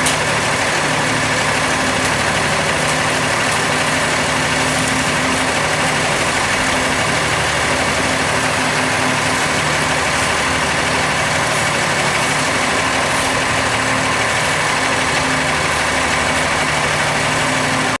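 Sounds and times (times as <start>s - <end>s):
heavy engine idling: 0.0s - 18.0s.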